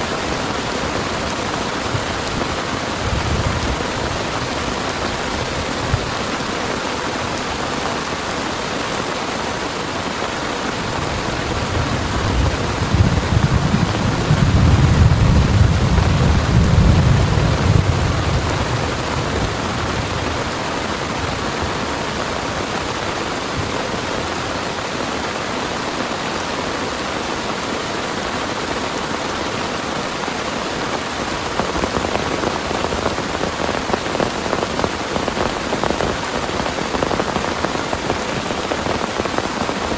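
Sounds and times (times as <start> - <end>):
heavy rain falling: 0.0 - 39.9
low rumble of thunder: 1.9 - 4.8, 11.2 - 22.0.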